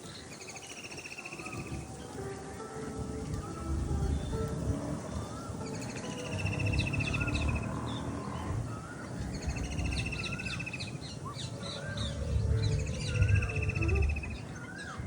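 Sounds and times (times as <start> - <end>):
birds chirping and calling: 0.0 - 15.0
whistled bird notes: 0.0 - 15.0
buzzy bird trill: 2.9 - 15.0
low rumble: 3.0 - 15.0.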